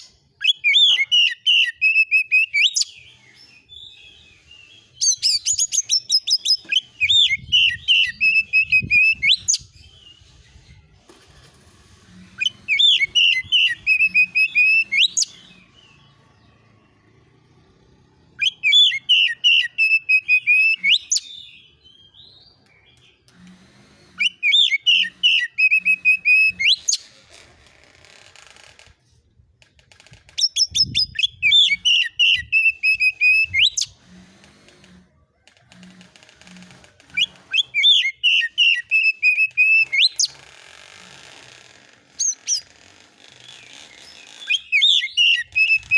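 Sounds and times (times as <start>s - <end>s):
songbird singing fast falling notes: 44.2s - 45.9s.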